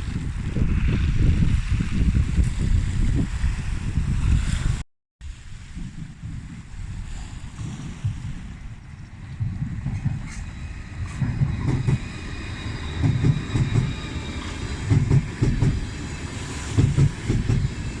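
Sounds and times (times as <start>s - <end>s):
train wheels clickety-clack: 9.3s - 18.0s.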